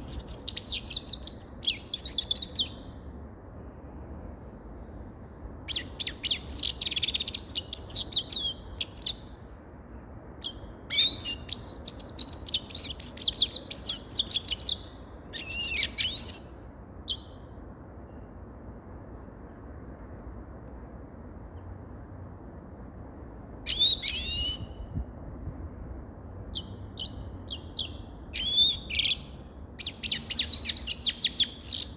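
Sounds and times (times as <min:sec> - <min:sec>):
goldfinch twittering song: 0:00.0 - 0:02.8, 0:05.7 - 0:09.2, 0:10.4 - 0:17.3, 0:26.6 - 0:31.9.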